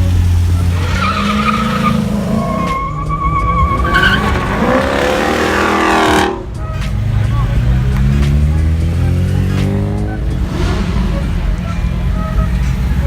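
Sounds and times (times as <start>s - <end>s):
car tyres squealing: 0.0s - 13.0s
engine revving: 0.0s - 13.0s.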